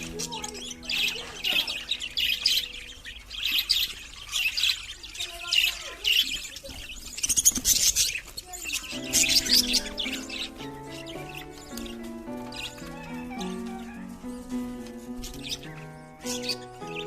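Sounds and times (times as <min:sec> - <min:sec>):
background music: 0:00.0 - 0:03.9, 0:08.9 - 0:17.0
bird chick begging chirps: 0:00.0 - 0:17.0.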